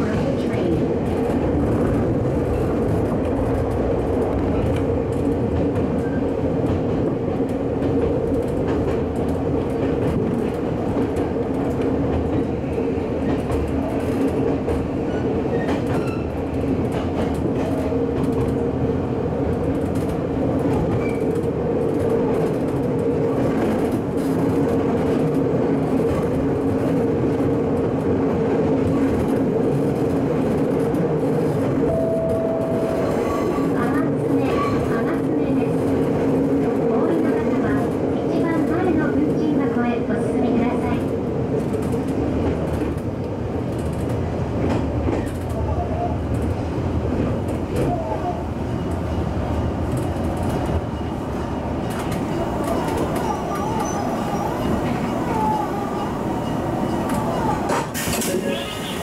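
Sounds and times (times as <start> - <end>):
electric train running hum: 0.0 - 59.0.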